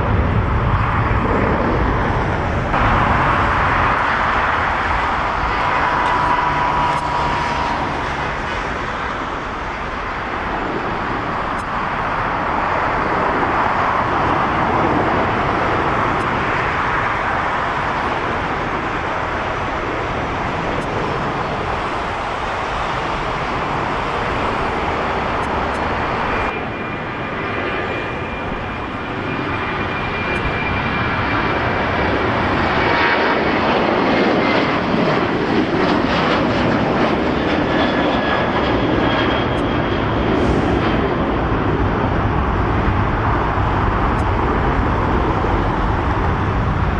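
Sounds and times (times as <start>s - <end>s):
jet engines rushing: 0.0s - 46.9s
faint high whine: 2.8s - 10.3s.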